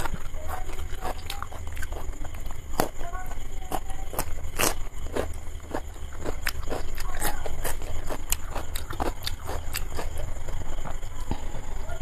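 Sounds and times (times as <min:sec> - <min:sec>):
steady low hum: 0:00.0 - 0:12.0
wet chewing mouth clicks: 0:03.7 - 0:11.0.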